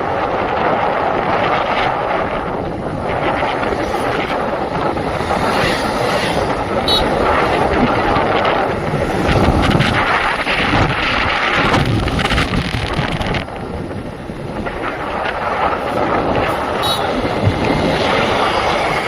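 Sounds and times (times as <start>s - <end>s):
vehicle and road noise: 0.0s - 19.0s
wind buffeting microphone: 0.0s - 19.0s.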